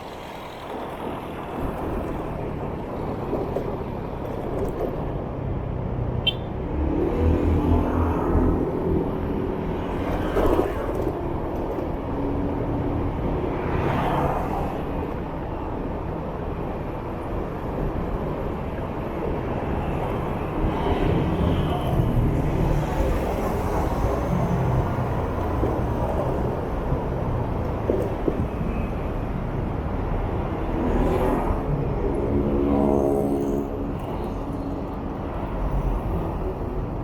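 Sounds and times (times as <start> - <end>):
vehicles passing close by: 4.9 - 37.0.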